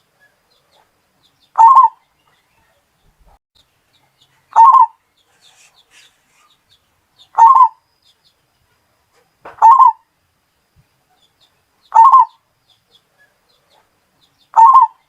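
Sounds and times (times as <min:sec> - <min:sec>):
faint high bird chirps: 0:00.1 - 0:03.4, 0:04.0 - 0:08.4, 0:09.5 - 0:10.1, 0:11.1 - 0:15.0
zebra dove cooing: 0:01.6 - 0:02.0, 0:04.5 - 0:06.5, 0:07.3 - 0:07.8, 0:09.6 - 0:10.1, 0:11.9 - 0:12.4, 0:14.5 - 0:15.0.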